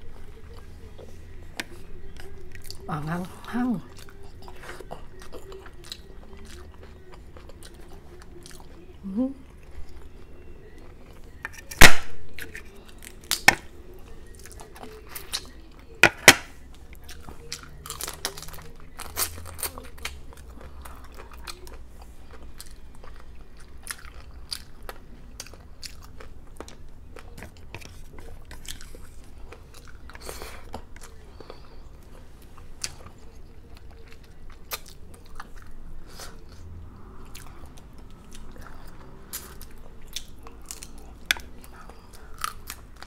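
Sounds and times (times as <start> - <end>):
crunching and chewing food: 0.0 - 43.0
shell cracking: 11.5 - 13.7.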